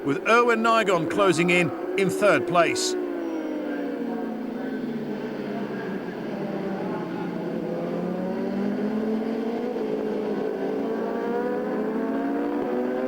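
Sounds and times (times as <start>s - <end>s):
race motorcycle engine accelerating: 6.3s - 13.0s.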